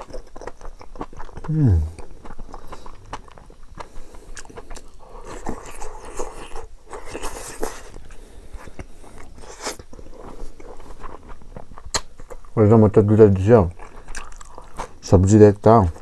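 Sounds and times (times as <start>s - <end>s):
person chewing crunchy food: 0.0s - 12.6s, 13.7s - 15.0s
wet mouth clicks: 11.8s - 12.1s.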